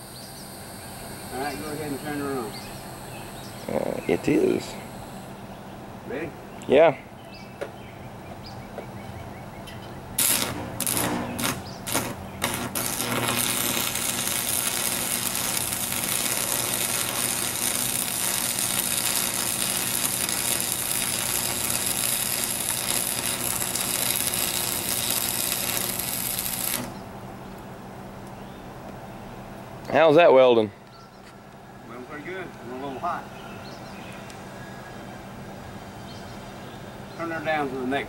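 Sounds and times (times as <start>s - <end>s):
welding arc crackling: 0.0s - 5.3s, 10.2s - 27.0s.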